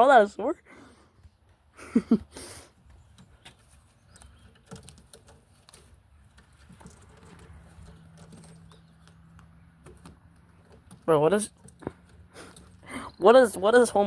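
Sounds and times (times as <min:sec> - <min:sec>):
pigeon tapping and pecking: 0:02.8 - 0:12.9.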